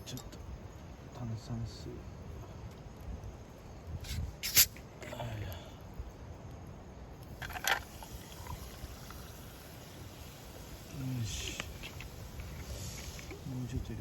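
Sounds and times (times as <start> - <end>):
bottle opening hiss: 4.0 - 4.8, 7.3 - 13.5
bottle handling sounds: 7.3 - 9.3.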